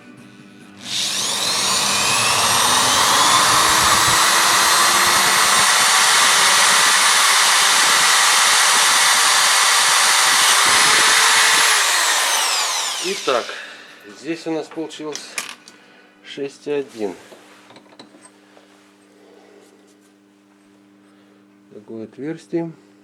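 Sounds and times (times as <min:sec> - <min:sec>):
electric drill boring a hole: 0:00.8 - 0:13.9.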